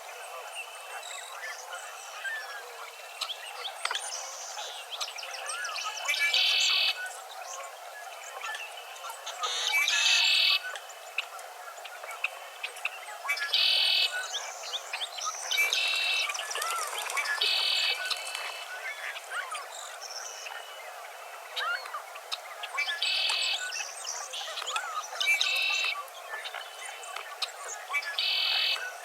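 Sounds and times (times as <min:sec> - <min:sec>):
birds chirping and whistling: 0:13.4 - 0:20.8, 0:22.6 - 0:29.0
bird rapid trill: 0:15.6 - 0:19.6.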